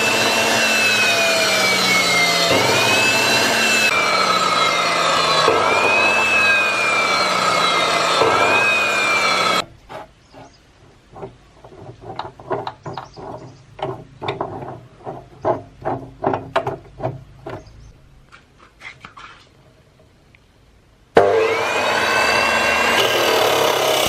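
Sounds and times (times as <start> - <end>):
cutting machine motor running: 0.0 - 9.6, 21.2 - 24.0.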